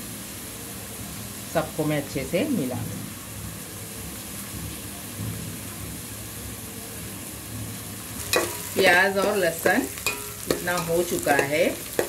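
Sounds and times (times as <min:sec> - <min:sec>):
food frying in oil: 0:00.0 - 0:12.0.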